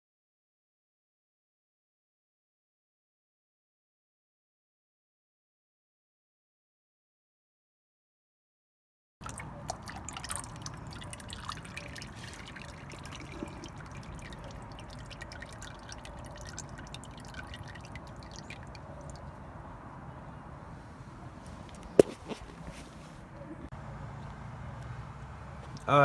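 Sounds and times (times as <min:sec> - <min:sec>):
oil pouring with gurgles: 0:09.2 - 0:19.6.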